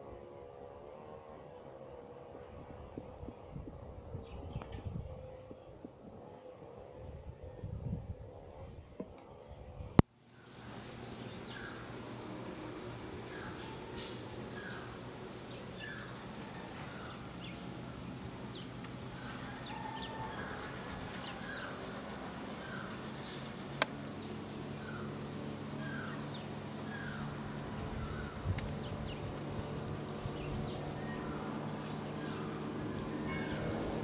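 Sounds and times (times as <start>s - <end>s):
low motor hum: 0.0s - 34.0s
birds calling: 10.4s - 34.0s.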